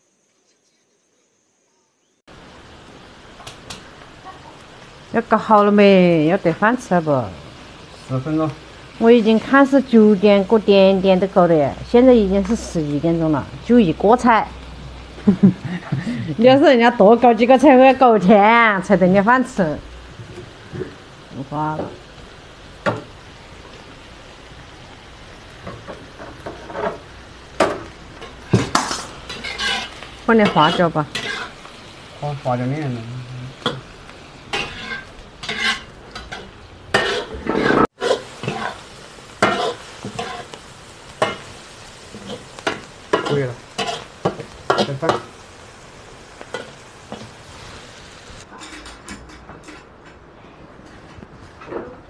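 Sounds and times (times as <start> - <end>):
offal sizzling in a wok: 0.0 - 52.0
spatula scraping a pan: 26.0 - 27.2, 28.2 - 31.7, 34.5 - 40.6, 42.2 - 45.3.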